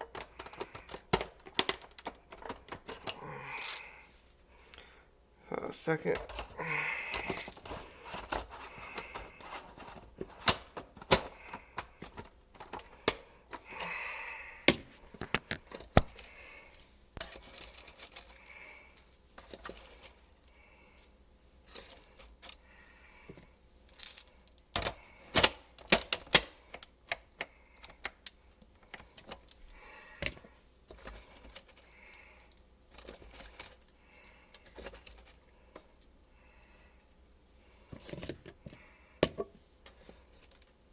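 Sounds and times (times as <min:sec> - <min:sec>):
sharp handling clicks and knocks: 0:00.0 - 0:03.8, 0:06.0 - 0:13.9, 0:23.3 - 0:36.0.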